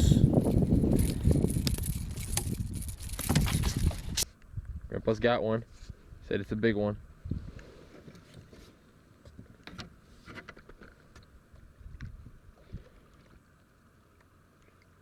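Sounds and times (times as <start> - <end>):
faint water sounds: 6.6 - 15.0.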